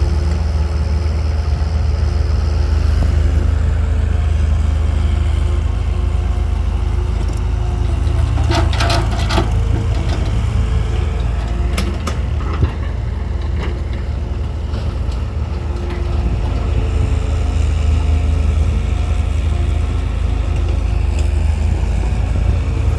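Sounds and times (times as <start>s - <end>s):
diesel engine running: 0.0s - 22.9s
clattering bursts: 8.0s - 10.6s.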